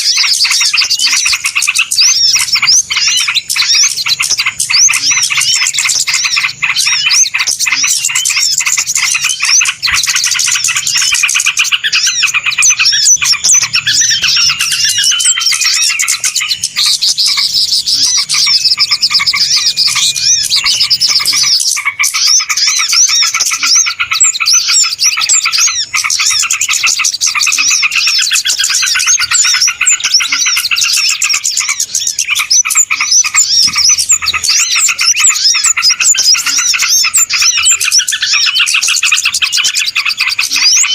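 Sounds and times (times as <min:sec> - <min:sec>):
small birds chirping: 0:00.0 - 0:40.9
gliding whistled notes: 0:07.9 - 0:21.7.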